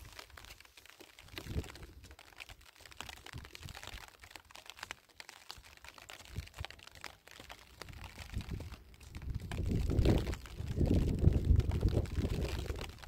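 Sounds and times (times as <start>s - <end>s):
dry earth and straw crunching underfoot: 0.0s - 13.0s.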